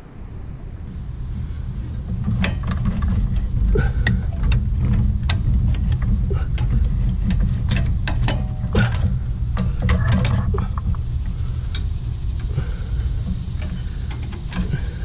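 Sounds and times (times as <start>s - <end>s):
motor-driven lift rumbling: 0.7s - 15.0s
metal parts clicking and knocking: 2.0s - 11.1s.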